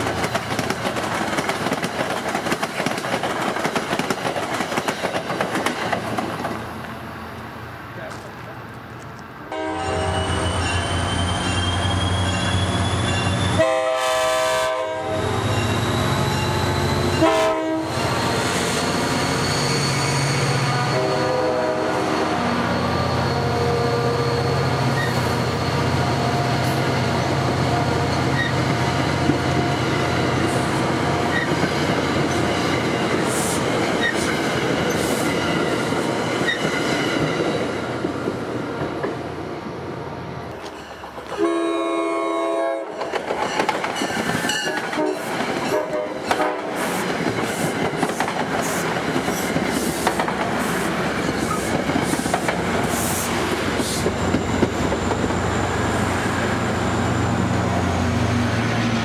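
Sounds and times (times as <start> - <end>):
wheels clacking over rail joints: 0.0 - 6.9, 42.9 - 52.9
wheels rumbling on rails: 0.0 - 9.4, 42.8 - 59.0
train cars rushing past: 0.0 - 59.0
locomotive air horn: 9.5 - 10.7, 13.4 - 16.4, 17.1 - 18.1, 20.4 - 22.6, 41.4 - 43.0, 44.5 - 46.8.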